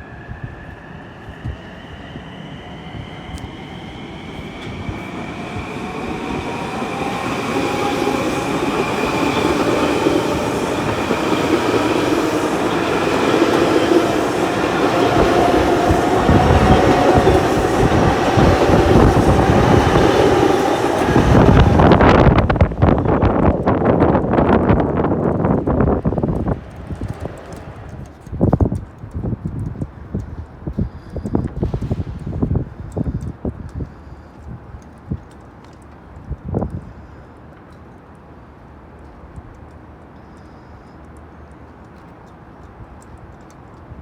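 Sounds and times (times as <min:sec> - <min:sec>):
train approaching: 0:00.0 - 0:29.0.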